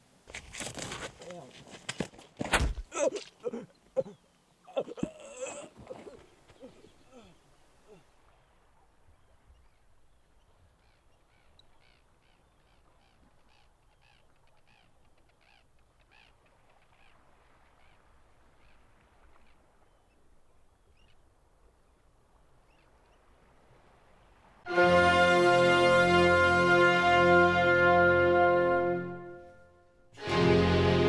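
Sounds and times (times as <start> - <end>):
faint bird calls: 2.9 - 23.4.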